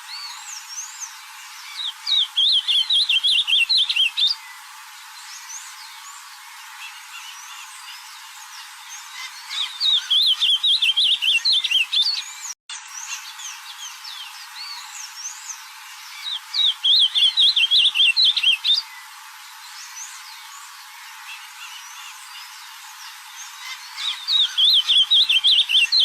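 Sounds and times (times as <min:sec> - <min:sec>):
faint bird chirps: 0:00.0 - 0:26.0.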